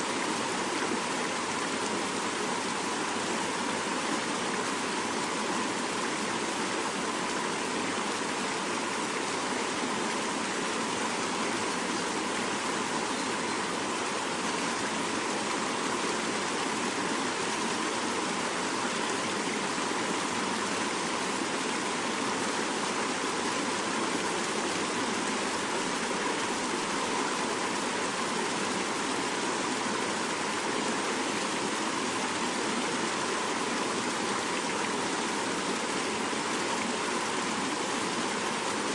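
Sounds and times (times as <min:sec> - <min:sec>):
river rushing: 0:00.0 - 0:38.9.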